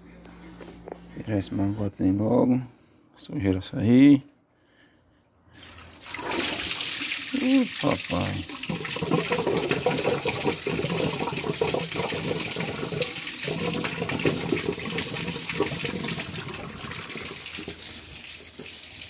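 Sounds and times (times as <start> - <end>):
coolant splashing onto ground: 5.6 - 19.0.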